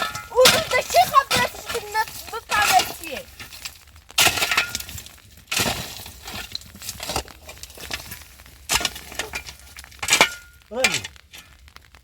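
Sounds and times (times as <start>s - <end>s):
sharp clattering knocks: 0.0s - 3.6s.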